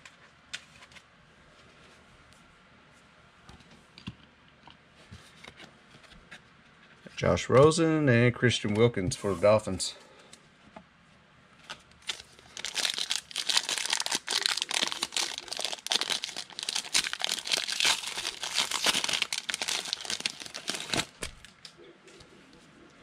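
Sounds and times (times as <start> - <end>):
foil wrappers tearing and crinkling: 11.7 - 21.7.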